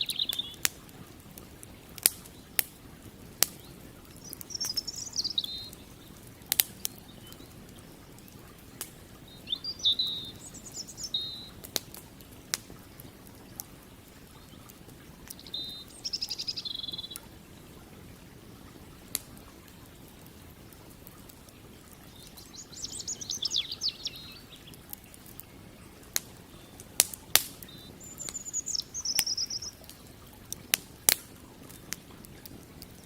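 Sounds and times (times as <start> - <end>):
songbird trilling: 0.0 - 0.6, 3.6 - 6.2, 9.2 - 11.6, 15.3 - 17.2, 22.1 - 24.8, 27.6 - 29.8
burning wood popping: 0.0 - 33.0
campfire crackling: 0.0 - 33.0.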